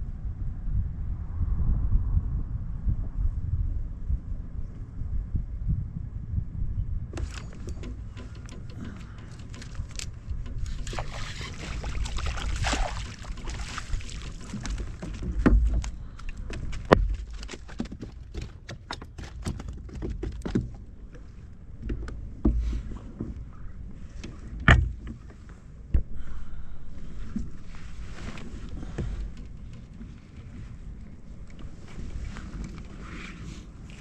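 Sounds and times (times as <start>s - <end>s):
wind rumbling on microphone: 0.0s - 34.0s
gear clicking and knocking: 7.2s - 20.8s.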